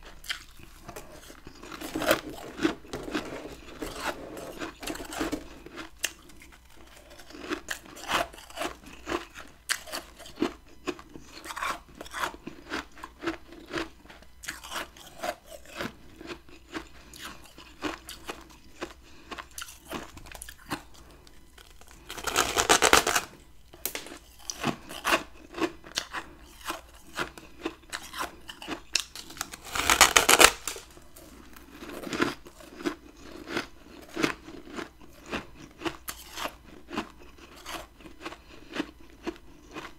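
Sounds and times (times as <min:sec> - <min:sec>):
person crunching frost: 0:00.0 - 0:39.9.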